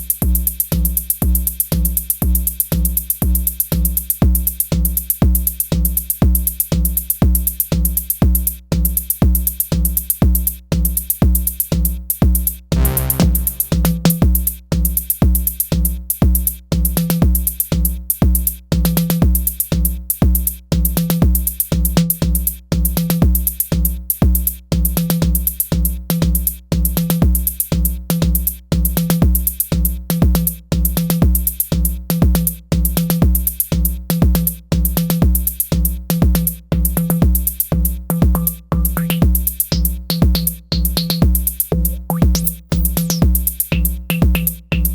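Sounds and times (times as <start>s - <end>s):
electronic drum pattern: 12.8s - 14.3s, 38.0s - 44.9s.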